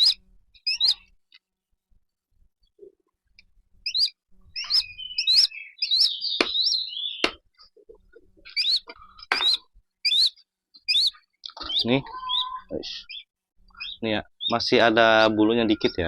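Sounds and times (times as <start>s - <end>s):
falcon shrill chirping calls: 0.0s - 1.0s, 3.9s - 7.4s, 8.5s - 14.7s.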